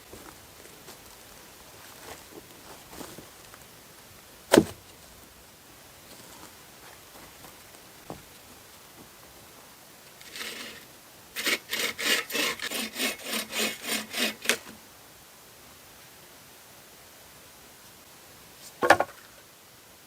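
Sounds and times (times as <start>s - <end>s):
back-and-forth scraping strokes: 10.2s - 14.8s.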